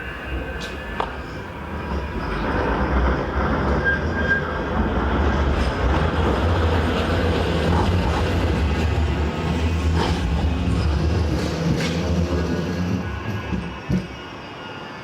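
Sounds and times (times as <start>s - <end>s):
tram rumbling along track: 0.0s - 15.0s.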